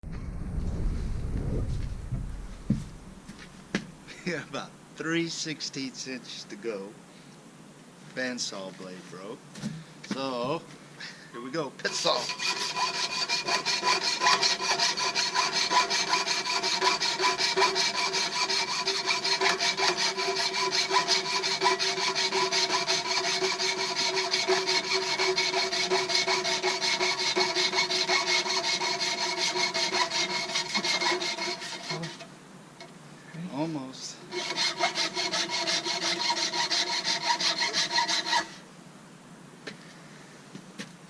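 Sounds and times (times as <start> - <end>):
saw blade rasping through wood: 11.8 - 32.3, 34.3 - 38.6.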